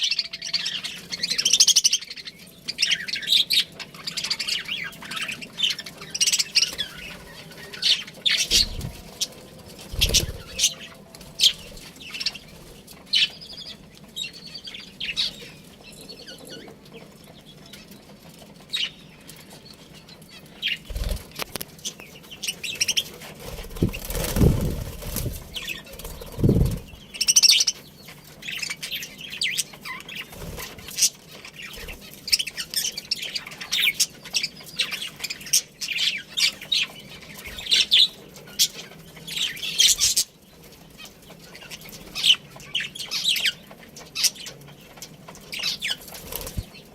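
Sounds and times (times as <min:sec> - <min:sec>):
budgerigars chirping: 0:00.0 - 0:16.7, 0:20.0 - 0:46.9
wings flapping: 0:06.3 - 0:13.2, 0:20.8 - 0:21.9, 0:22.7 - 0:27.3, 0:30.2 - 0:32.0, 0:45.6 - 0:46.9.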